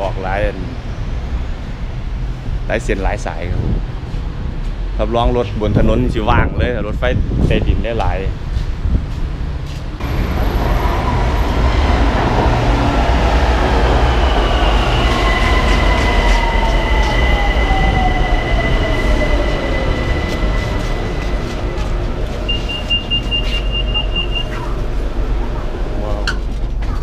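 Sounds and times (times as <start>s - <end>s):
electric train rumble: 0.0s - 27.0s
steady high whine: 10.0s - 26.3s.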